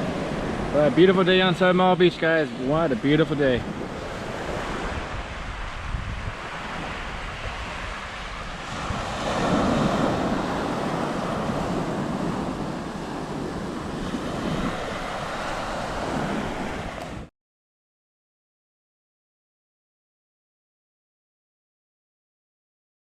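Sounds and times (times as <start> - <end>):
surf washing onto beach: 0.0 - 17.3
wind buffeting microphone: 0.0 - 17.3.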